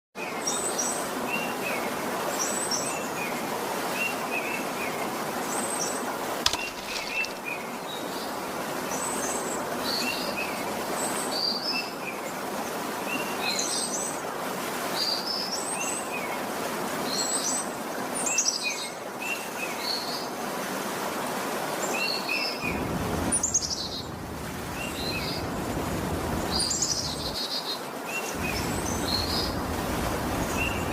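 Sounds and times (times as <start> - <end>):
small birds chirping: 22.5 - 30.9
steady rushing noise: 22.6 - 27.4, 28.3 - 30.9
low rumble: 22.7 - 27.4, 28.4 - 30.9.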